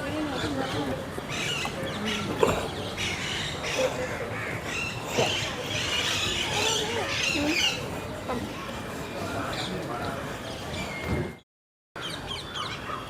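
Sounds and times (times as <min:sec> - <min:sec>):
birds chirping: 0:00.0 - 0:11.4, 0:12.0 - 0:13.0
murmur of voices: 0:00.0 - 0:11.4.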